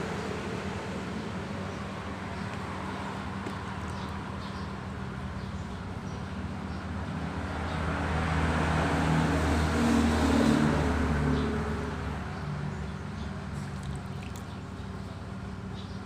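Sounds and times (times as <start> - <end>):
vehicle driving past: 7.3 - 15.3.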